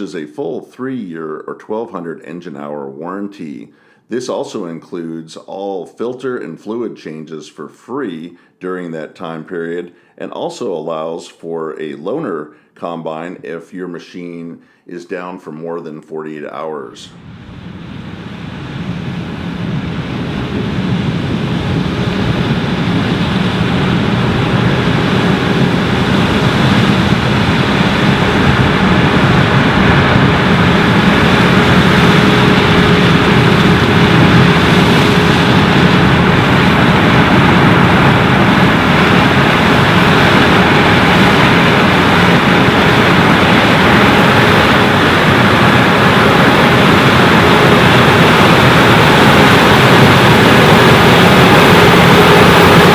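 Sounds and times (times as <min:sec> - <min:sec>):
faint steady hum: 0:16.7 - 0:52.9
combine harvester machinery: 0:20.8 - 0:52.9.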